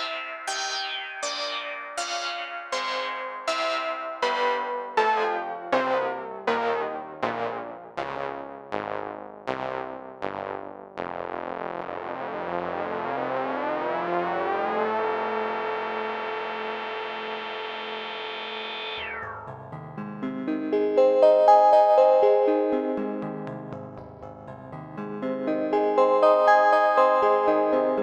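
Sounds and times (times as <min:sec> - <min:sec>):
held pulsing synthesizer chord: 0:00.0 - 0:11.2, 0:12.0 - 0:20.2
synthesizer chords: 0:00.0 - 0:28.0.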